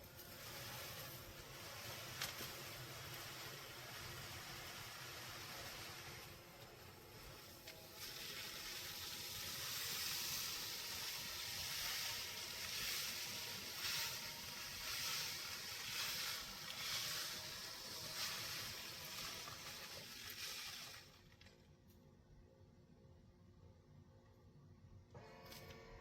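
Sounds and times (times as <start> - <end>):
cat litter rustling: 0.1 - 21.4.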